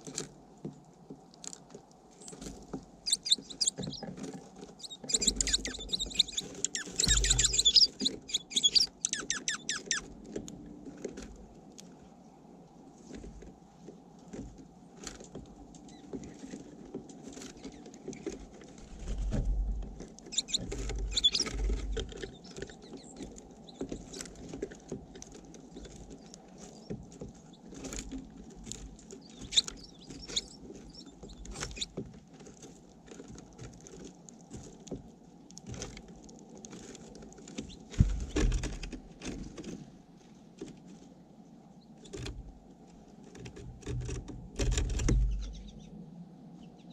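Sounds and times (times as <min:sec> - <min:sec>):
beaks tapping on bird feeder: 0:04.9 - 0:10.0, 0:20.3 - 0:24.2.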